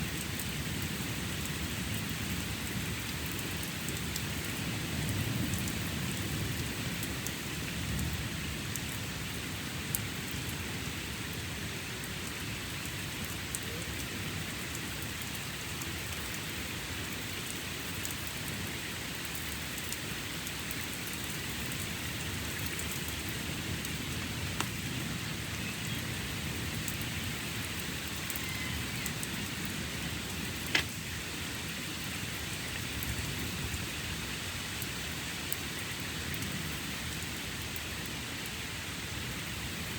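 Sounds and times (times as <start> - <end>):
heavy rain falling: 0.0 - 39.9
sharp drip-like clicks: 0.1 - 9.0, 9.8 - 10.6, 12.0 - 24.8, 26.7 - 31.0, 34.8 - 38.2.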